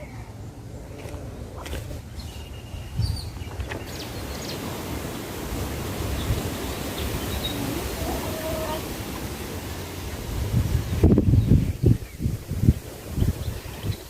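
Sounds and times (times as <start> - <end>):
hiss: 3.8 - 14.0.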